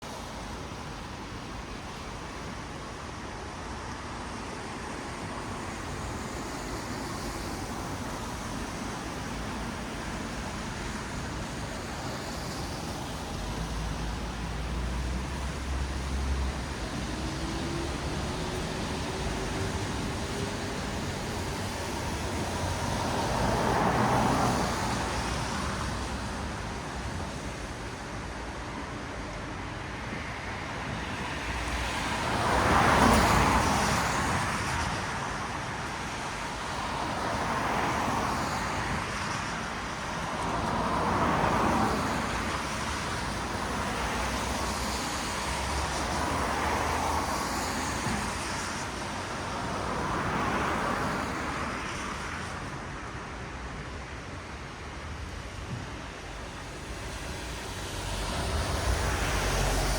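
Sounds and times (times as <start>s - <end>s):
tyres hissing on wet asphalt: 0.1s - 59.9s
vehicle passing close: 56.8s - 59.9s.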